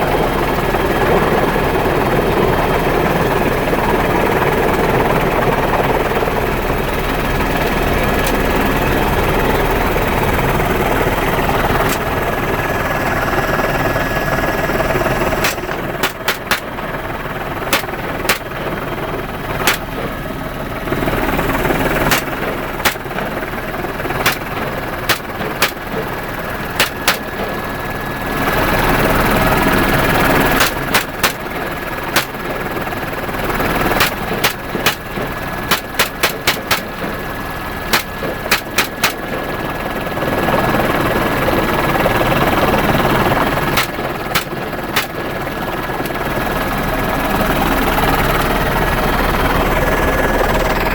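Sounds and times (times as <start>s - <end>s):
helicopter engine and rotor: 0.0s - 50.9s
rifle shots: 15.4s - 17.0s, 17.6s - 20.6s, 21.9s - 28.0s, 30.5s - 32.7s, 33.8s - 39.6s, 43.7s - 45.6s.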